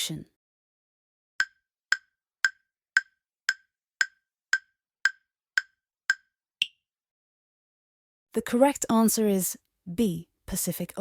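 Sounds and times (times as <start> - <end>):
woody timer ticks: 1.4 - 6.8.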